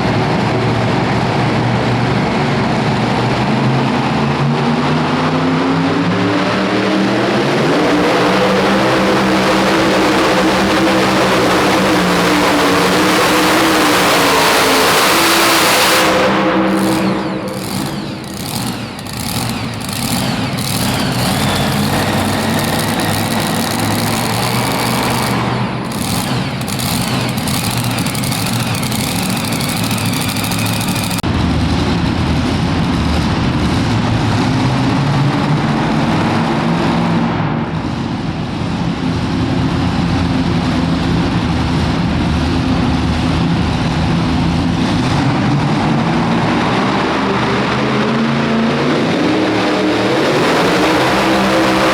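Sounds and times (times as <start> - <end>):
loud truck engine with crackles: 0.0 - 51.9.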